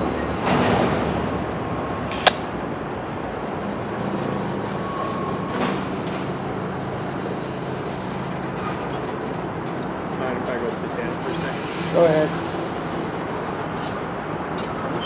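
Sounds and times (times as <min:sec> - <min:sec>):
diesel locomotive engine hum: 0:00.0 - 0:15.0.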